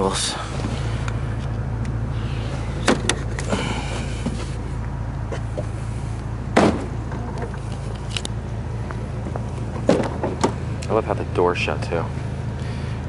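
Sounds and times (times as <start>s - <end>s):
car engine idling: 0.0s - 13.0s
car door thump: 2.8s - 3.3s, 6.5s - 7.1s, 9.8s - 10.6s.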